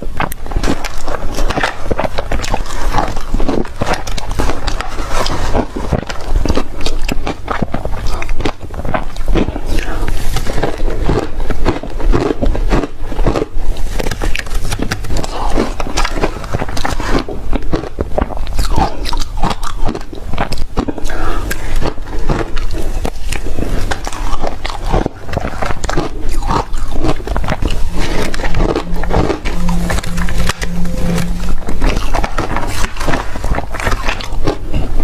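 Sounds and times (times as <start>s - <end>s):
ice crunching being chewed: 0.0s - 35.0s.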